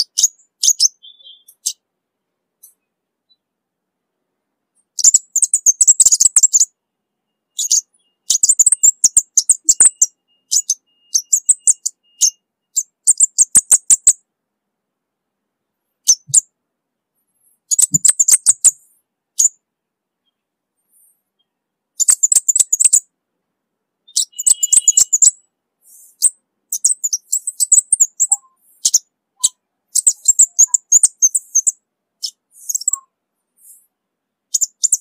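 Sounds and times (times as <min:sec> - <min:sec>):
bird ticking calls: 0:00.0 - 0:01.8, 0:04.8 - 0:06.7, 0:07.5 - 0:14.2, 0:16.0 - 0:16.5, 0:17.7 - 0:19.6, 0:21.4 - 0:23.0, 0:24.1 - 0:33.8, 0:34.5 - 0:35.0.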